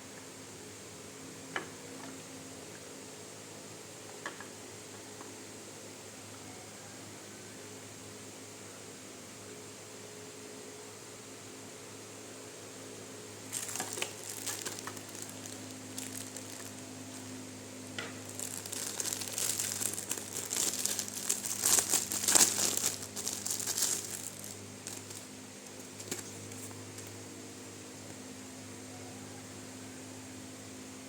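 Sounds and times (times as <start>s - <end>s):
steady low hum: 0.0s - 31.0s
packaging crinkling and tearing: 13.5s - 17.3s, 18.0s - 27.2s.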